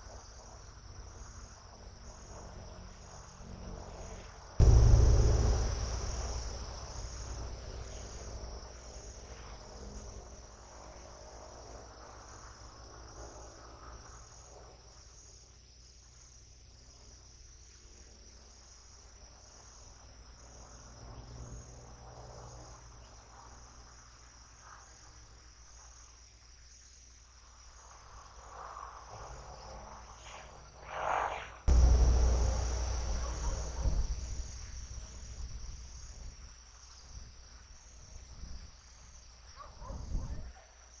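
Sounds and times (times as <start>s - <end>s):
crickets chirping: 0.0s - 41.0s
low background rumble: 4.6s - 9.1s, 31.7s - 36.3s.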